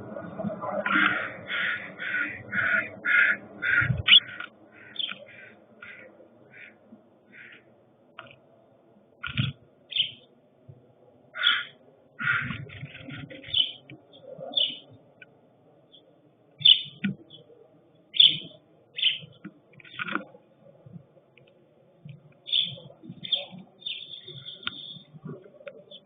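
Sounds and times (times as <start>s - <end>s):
birds chirping: 0.0s - 8.5s, 9.1s - 10.4s, 11.3s - 26.0s.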